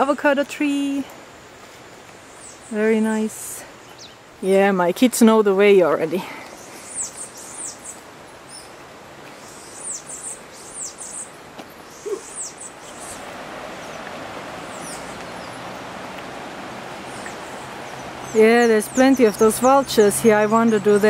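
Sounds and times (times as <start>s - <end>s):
birds chirping: 0.0s - 21.0s
steady rushing noise: 12.7s - 21.0s.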